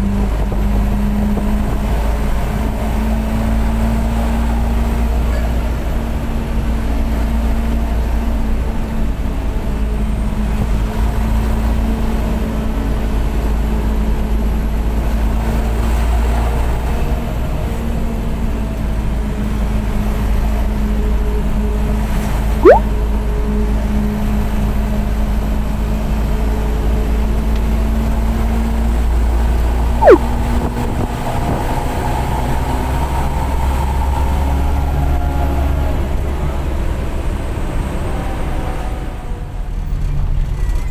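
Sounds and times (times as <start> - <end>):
bus engine and road noise: 0.0 - 40.9
loud sweeping chirps: 22.6 - 22.8, 30.0 - 30.2.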